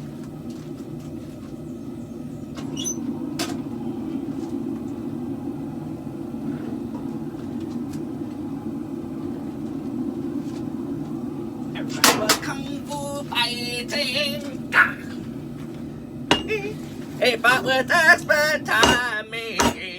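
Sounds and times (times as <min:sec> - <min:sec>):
forge equipment roaring: 0:00.0 - 0:19.9.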